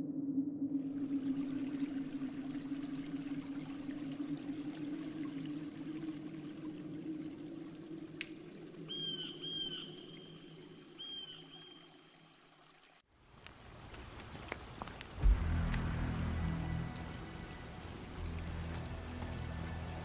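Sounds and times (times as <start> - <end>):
creek water running: 0.8 - 20.0
deep low hit: 15.2 - 17.2
sustained low music: 15.2 - 20.0.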